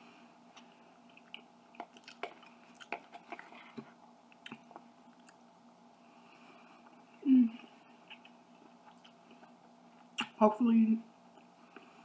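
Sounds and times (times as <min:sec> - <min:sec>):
person chewing: 0:00.5 - 0:05.5, 0:06.8 - 0:10.3
mouth clicks and smacks: 0:10.0 - 0:10.4.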